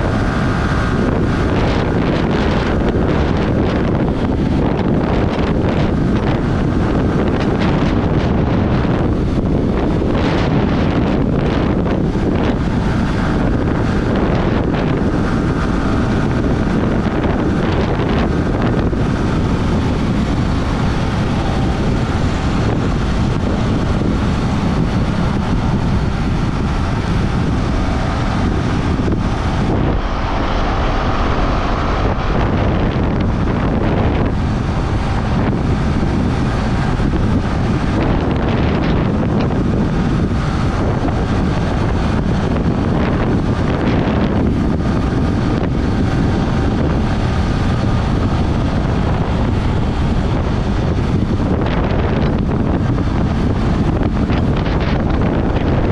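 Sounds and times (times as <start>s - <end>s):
motorcycle engine at speed: 0.0s - 55.9s
wind buffeting microphone: 0.0s - 55.9s.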